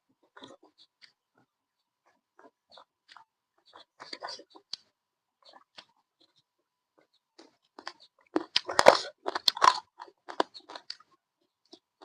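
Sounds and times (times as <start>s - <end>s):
person chewing meat: 7.0s - 12.0s.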